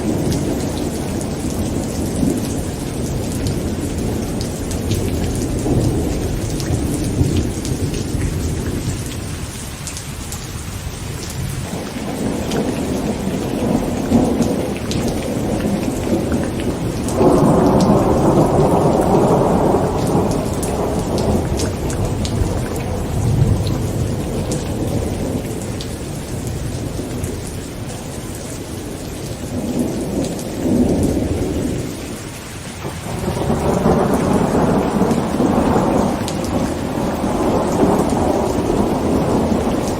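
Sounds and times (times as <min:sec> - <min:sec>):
heavy rain on a tent: 0:00.0 - 0:39.9
thunder rolling: 0:11.4 - 0:27.6, 0:32.8 - 0:39.9.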